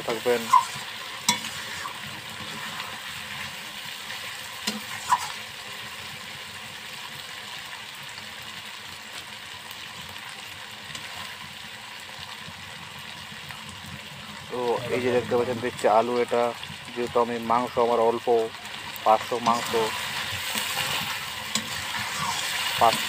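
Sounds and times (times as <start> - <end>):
chicken sizzling in wok: 0.0 - 23.0
spatula scraping and knocking pan: 0.4 - 2.9, 19.4 - 23.0.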